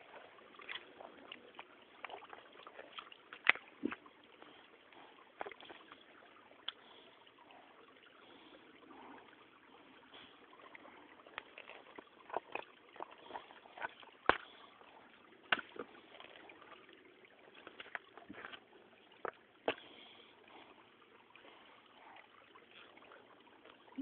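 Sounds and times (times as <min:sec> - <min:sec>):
stream trickling: 0:00.0 - 0:24.0
splashes and knocks in water: 0:15.4 - 0:16.4.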